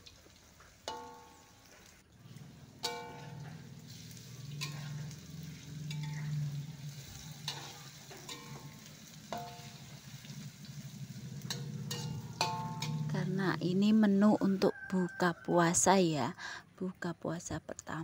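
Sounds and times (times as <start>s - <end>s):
tofu sizzling in oil: 0.0s - 13.7s
metal spatula clanking on wok: 0.9s - 1.5s, 2.4s - 13.8s.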